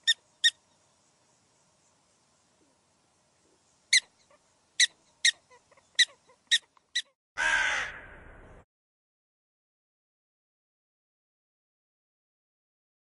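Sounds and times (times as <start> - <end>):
crow calling: 5.5 - 8.3.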